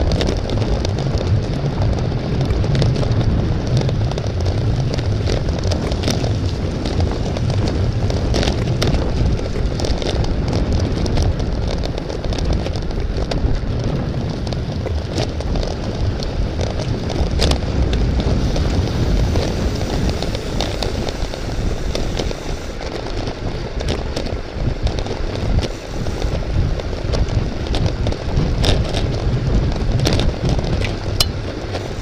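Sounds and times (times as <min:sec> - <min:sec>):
road noise: 0:00.0 - 0:32.0
wind buffeting microphone: 0:00.0 - 0:32.0.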